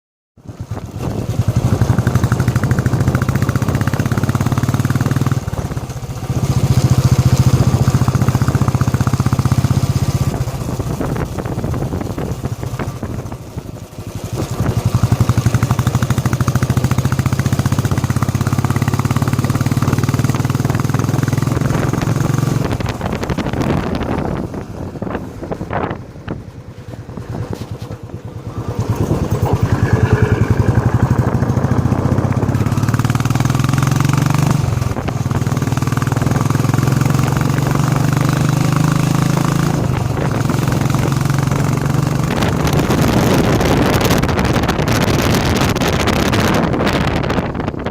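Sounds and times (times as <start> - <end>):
motorcycle engine running: 0.4 - 47.9.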